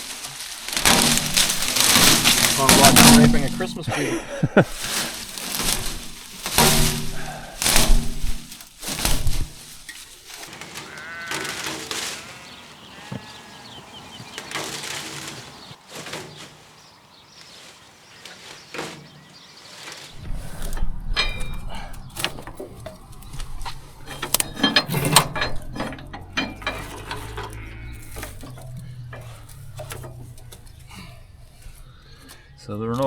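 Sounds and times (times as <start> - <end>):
metallic clicks and clanks: 0.0 - 11.9, 20.2 - 33.0.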